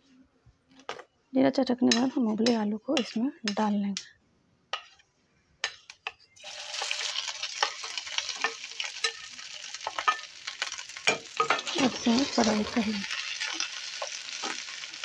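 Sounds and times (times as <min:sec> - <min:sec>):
spatula scraping and tapping bowl: 0:01.8 - 0:04.1, 0:04.7 - 0:10.3
oil sizzling in frying pan: 0:05.6 - 0:15.0.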